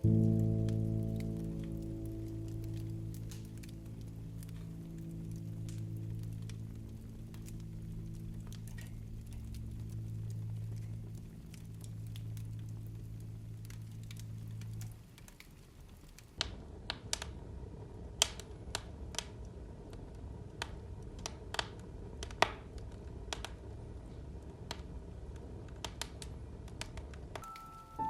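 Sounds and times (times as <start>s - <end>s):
low steady rumble: 0.0s - 25.6s
fire crackling: 0.0s - 28.0s.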